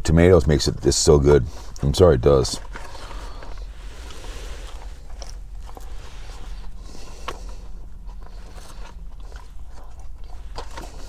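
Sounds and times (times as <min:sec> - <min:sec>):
steady low rumble: 0:00.1 - 0:11.0
chewing a sandwich: 0:00.7 - 0:11.0.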